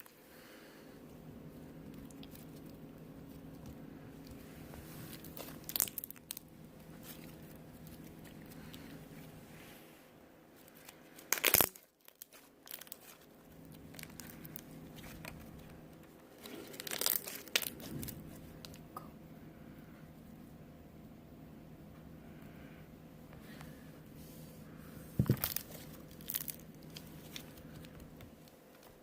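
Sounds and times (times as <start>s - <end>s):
slime crackling and crunching: 1.8s - 9.3s, 10.6s - 18.8s, 25.2s - 28.2s.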